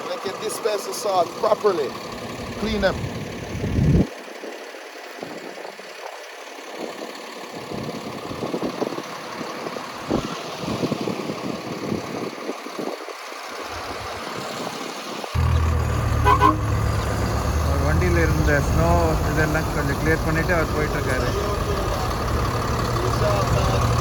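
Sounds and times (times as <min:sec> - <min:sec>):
truck engine idling: 0:00.0 - 0:24.0
low engine drone: 0:15.3 - 0:24.0.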